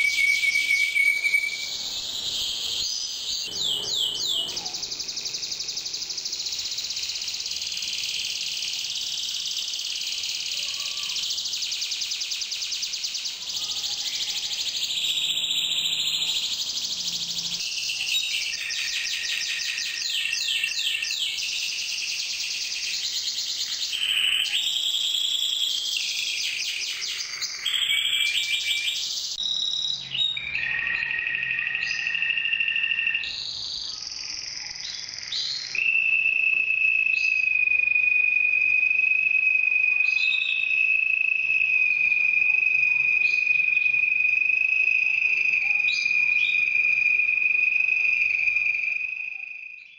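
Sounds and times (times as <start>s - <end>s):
canary singing trills: 0.0s - 36.5s.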